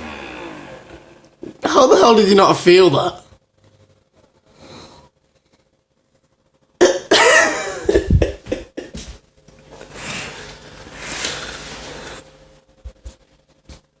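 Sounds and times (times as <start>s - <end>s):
person coughing: 6.8s - 9.1s.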